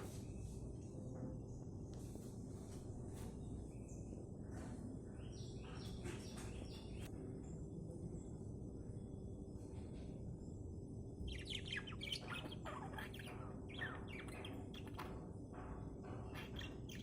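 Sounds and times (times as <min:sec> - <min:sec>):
steady low hum: 0:00.0 - 0:17.0
budgerigars chirping: 0:11.3 - 0:17.0.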